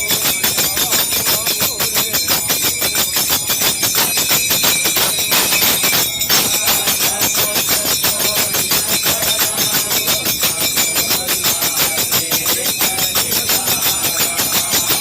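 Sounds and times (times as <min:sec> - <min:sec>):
fast percussion strikes: 0:00.0 - 0:15.0
faint group singing: 0:05.8 - 0:15.0.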